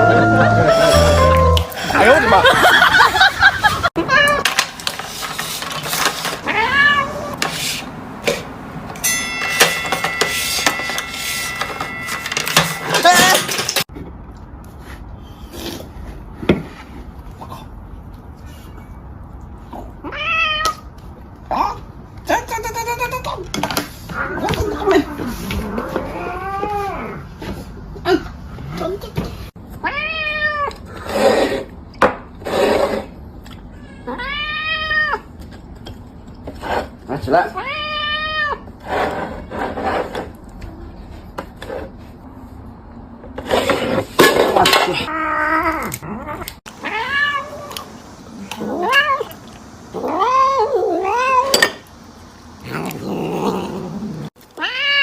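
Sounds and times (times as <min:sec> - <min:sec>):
steady high tone: 0:00.0 - 0:02.5, 0:09.0 - 0:13.6
cat meowing: 0:54.6 - 0:55.0.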